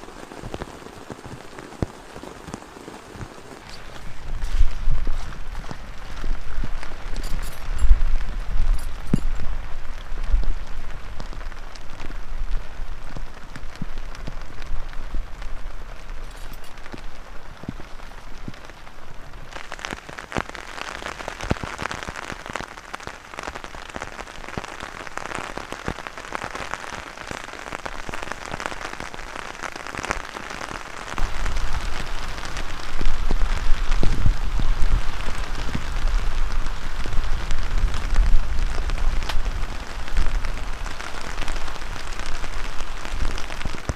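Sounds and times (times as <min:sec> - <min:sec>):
wind rumbling on microphone: 0:00.0 - 0:20.4, 0:31.1 - 0:43.9
heavy rain falling: 0:00.0 - 0:43.9.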